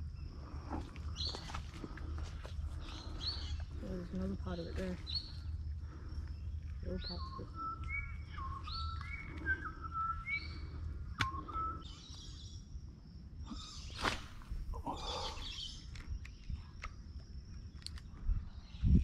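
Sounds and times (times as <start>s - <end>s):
bird whistled notes: 7.0s - 12.4s.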